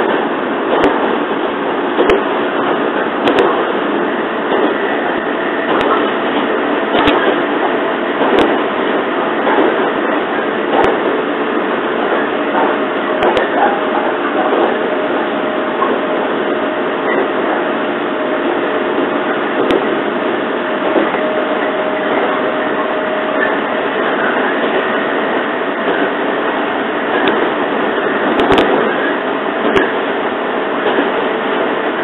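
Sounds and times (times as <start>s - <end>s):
train carriage running noise: 0.0s - 32.0s
sharp clicks: 3.2s - 3.6s.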